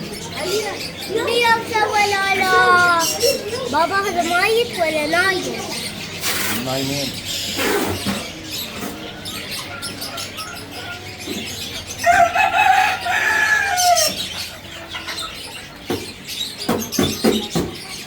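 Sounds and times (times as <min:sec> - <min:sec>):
rooster crowing: 0:12.0 - 0:14.2.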